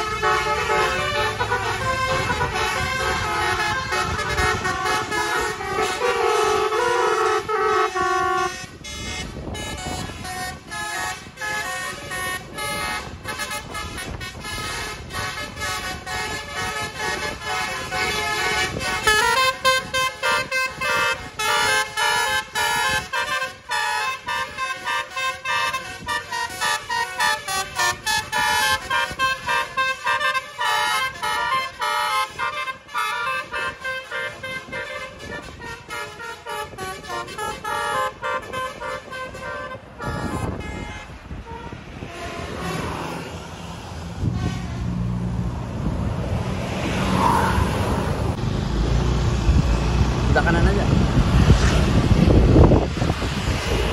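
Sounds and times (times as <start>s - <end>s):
bus musical horn playing a melody: 0.0s - 45.5s, 46.6s - 48.4s
road noise: 0.0s - 53.9s
engine noise: 41.5s - 53.9s.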